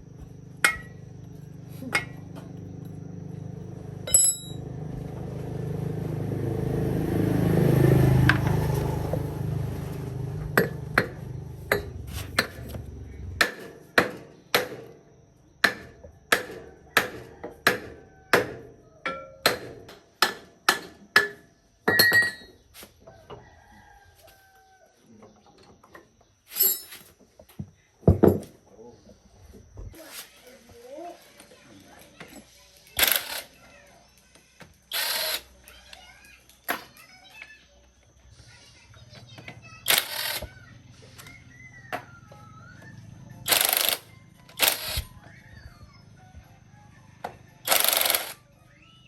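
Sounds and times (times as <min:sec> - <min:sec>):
rooster crowing: 0:16.6 - 0:19.1, 0:23.0 - 0:25.2.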